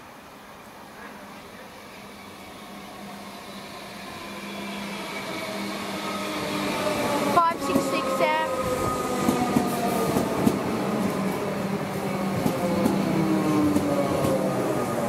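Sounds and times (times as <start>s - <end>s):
electric train hum and rail noise: 0.0s - 15.0s
train whining tones: 2.0s - 15.0s.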